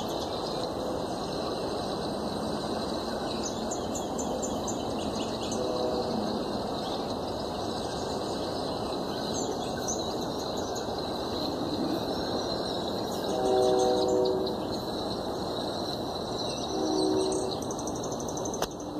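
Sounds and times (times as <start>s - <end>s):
steady background hum: 0.0s - 18.9s
multi-note horn: 5.5s - 6.6s, 13.2s - 14.7s, 16.7s - 17.6s.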